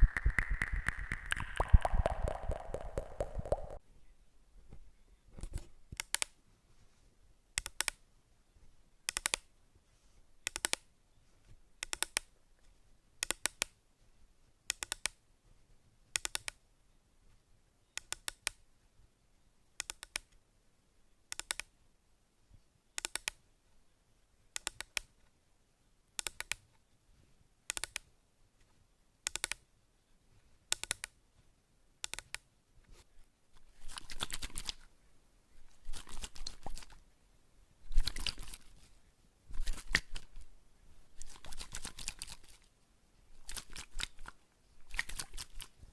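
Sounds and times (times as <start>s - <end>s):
sharp clicks: 0.0s - 3.8s, 7.6s - 8.0s, 9.1s - 9.5s, 10.5s - 10.8s, 26.2s - 26.6s, 27.7s - 28.1s, 29.3s - 29.6s, 32.0s - 32.4s.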